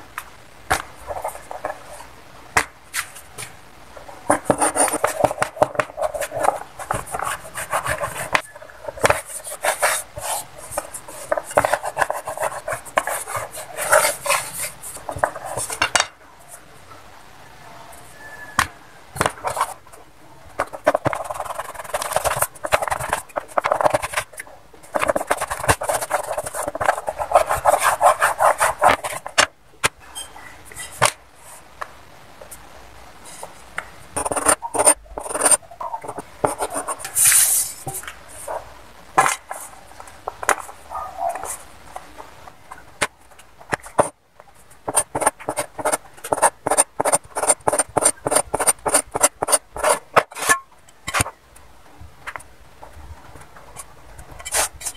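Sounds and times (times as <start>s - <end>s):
rolling pin rolling dough on board: 4.3s - 16.0s, 20.6s - 29.5s, 34.2s - 37.2s, 44.8s - 51.3s.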